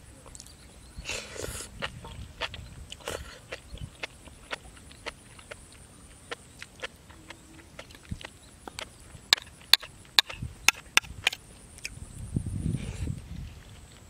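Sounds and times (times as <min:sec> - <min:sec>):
person chewing with mouth clicks: 0:01.2 - 0:12.0.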